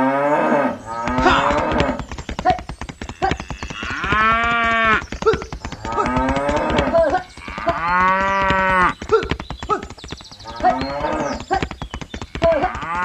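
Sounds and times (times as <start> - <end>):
cattle mooing: 0.0 - 2.0, 5.9 - 8.9
fast clatter of clicks: 0.8 - 13.0.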